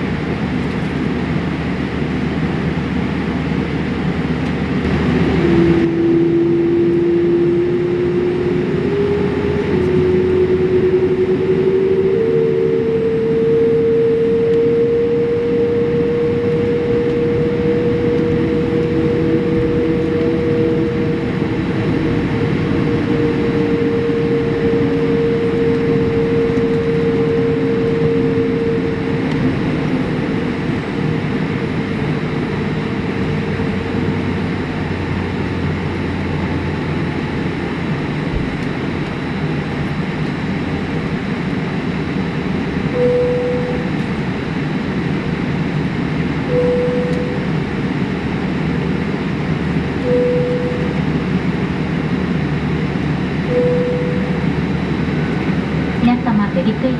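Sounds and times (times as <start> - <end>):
vehicle interior hum and rumble: 0.0 - 56.9
whining tone: 0.1 - 56.9
faint low gliding tone: 4.8 - 37.0, 53.4 - 56.9.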